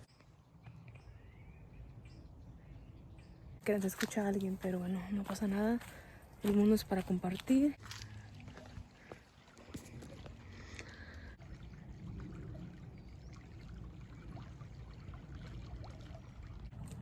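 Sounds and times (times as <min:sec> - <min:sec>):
river water flowing: 0:07.4 - 0:17.0.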